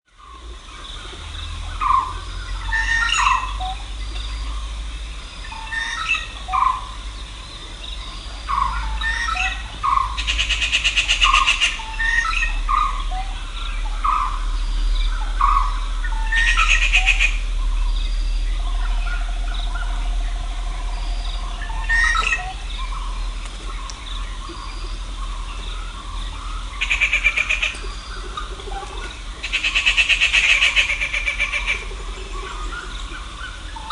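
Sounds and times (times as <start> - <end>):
birds chirping: 0.2 - 33.9
steady low rumble: 0.2 - 33.9
buzzy bird trills: 8.4 - 33.9.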